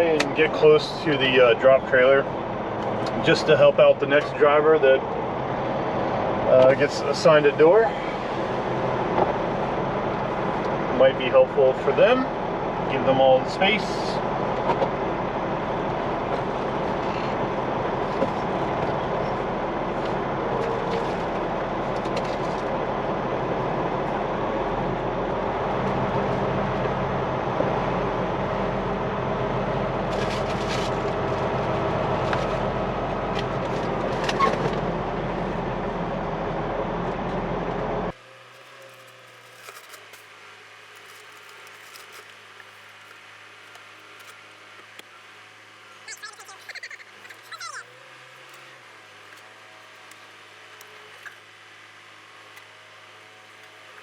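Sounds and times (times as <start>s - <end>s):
truck diesel engine running: 0.0s - 39.5s.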